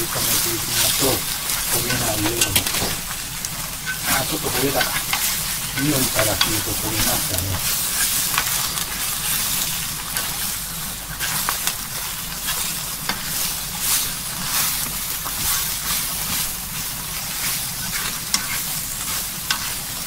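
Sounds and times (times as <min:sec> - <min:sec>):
food sizzling in a frying pan: 0:00.0 - 0:20.0
chopsticks clicking against pan: 0:03.9 - 0:07.6.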